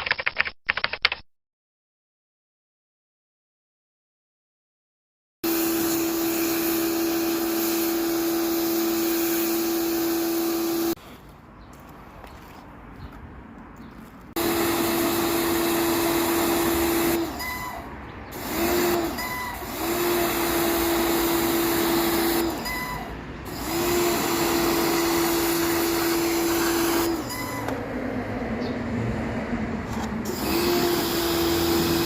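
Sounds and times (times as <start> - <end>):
electric motor humming: 5.5 - 11.0, 14.4 - 17.4, 23.5 - 27.8, 30.2 - 32.0.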